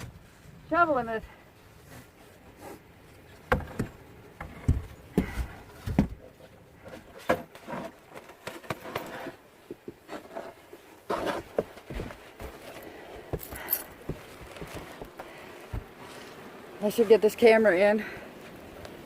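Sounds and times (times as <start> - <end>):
shovel scraping snow: 10.1 - 11.6.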